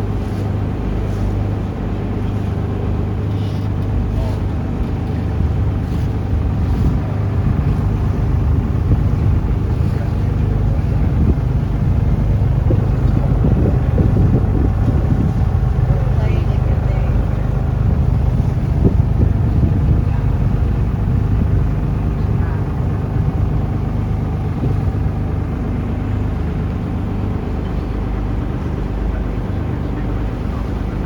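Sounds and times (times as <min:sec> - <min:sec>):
boat engine humming: 0:00.0 - 0:31.0
wind on microphone: 0:00.0 - 0:31.0.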